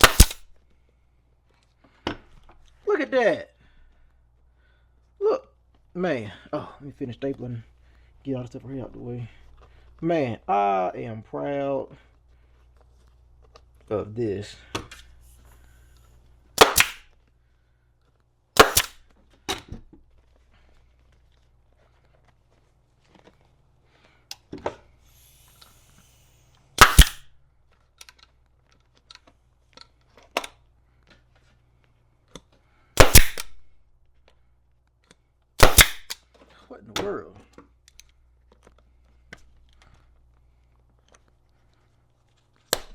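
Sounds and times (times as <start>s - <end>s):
air staple gun firing: 0.0s - 0.5s, 16.6s - 17.0s, 18.6s - 19.0s, 25.1s - 27.3s, 33.0s - 33.6s, 35.6s - 36.2s.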